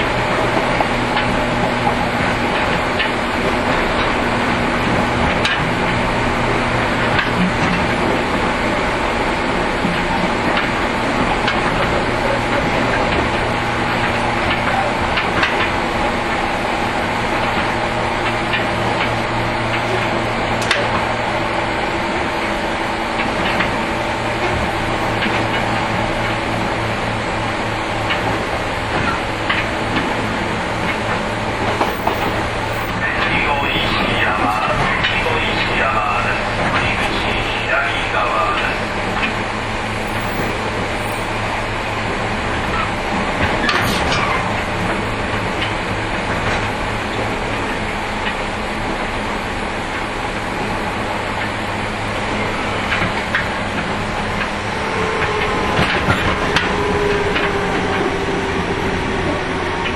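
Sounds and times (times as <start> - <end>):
train wheels rushing: 0.0 - 59.9
wheel squeal and clatter: 30.9 - 35.2, 39.9 - 45.7.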